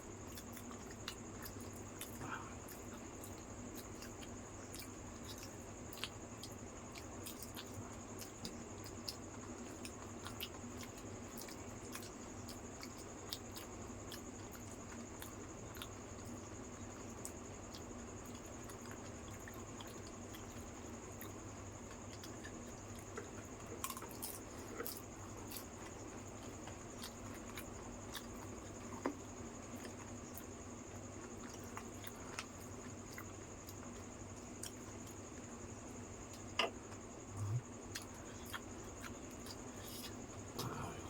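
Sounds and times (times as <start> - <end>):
faint high-pitched whine and hum: 0.0 - 41.0
people eating mouth sounds: 36.3 - 41.0.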